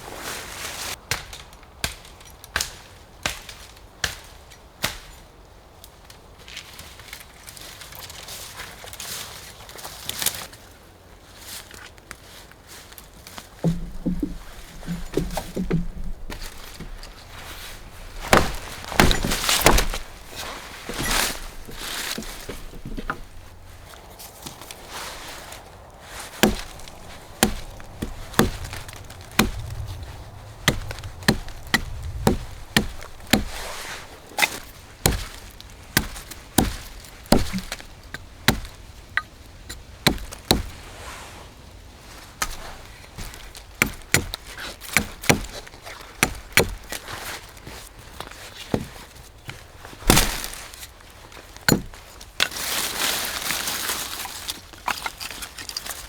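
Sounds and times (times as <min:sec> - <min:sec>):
blade chopping wood: 0:13.6 - 0:25.5, 0:26.1 - 0:40.8, 0:42.4 - 0:47.2, 0:48.2 - 0:50.8, 0:51.7 - 0:52.6.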